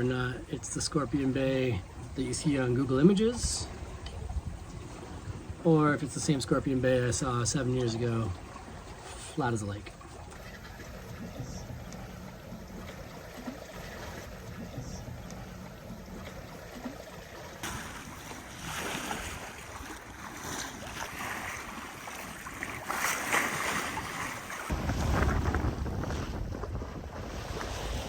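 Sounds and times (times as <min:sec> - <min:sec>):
water splashing along hull: 0:00.0 - 0:28.0
wind: 0:00.0 - 0:28.0
wind buffeting microphone: 0:01.8 - 0:09.0, 0:23.7 - 0:28.0.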